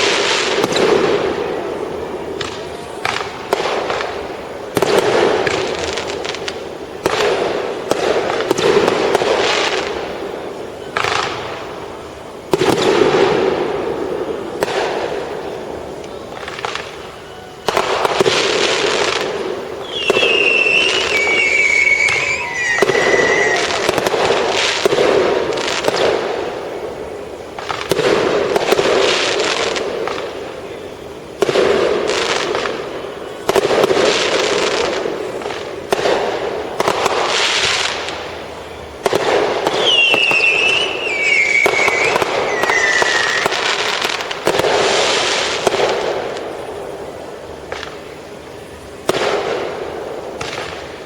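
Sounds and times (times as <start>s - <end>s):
fireworks banging and crackling: 0.0s - 51.0s
falling whistle: 19.8s - 24.0s, 39.8s - 43.6s.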